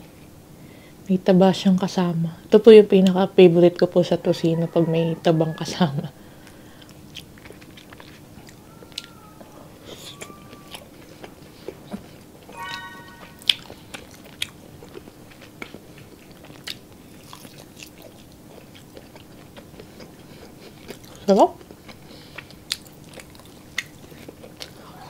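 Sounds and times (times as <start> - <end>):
wet chewing with smacks: 6.4 - 9.2, 10.2 - 12.3, 13.9 - 24.8
short pitched sound: 12.5 - 13.7.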